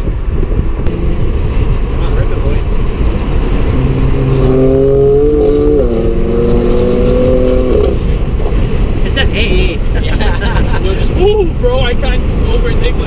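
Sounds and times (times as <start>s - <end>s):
car engine accelerating: 0.0s - 9.8s
road noise: 0.0s - 13.0s.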